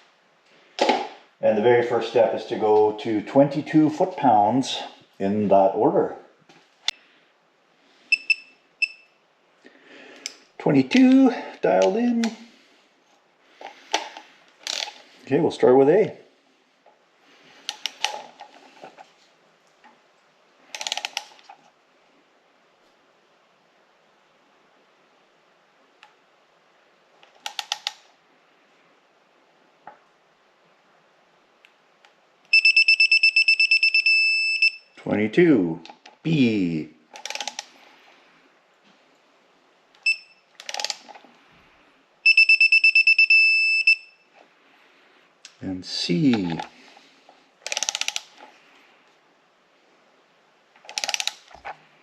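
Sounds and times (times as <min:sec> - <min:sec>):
torque wrench beeping: 0:08.1 - 0:09.1, 0:32.5 - 0:35.0, 0:40.0 - 0:40.9, 0:42.2 - 0:44.2
ratchet clicks: 0:20.8 - 0:21.3, 0:37.2 - 0:37.7, 0:40.6 - 0:41.1, 0:47.6 - 0:48.3, 0:50.9 - 0:51.5.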